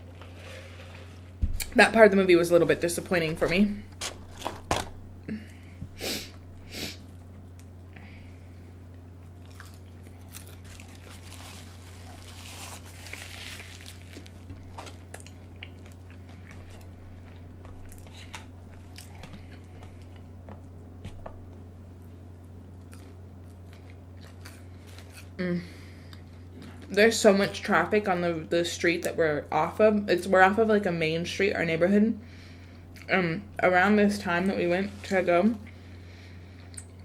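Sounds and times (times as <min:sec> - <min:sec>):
steady low hum: 0:00.0 - 0:37.0
person chewing food: 0:08.9 - 0:21.6, 0:22.4 - 0:25.4.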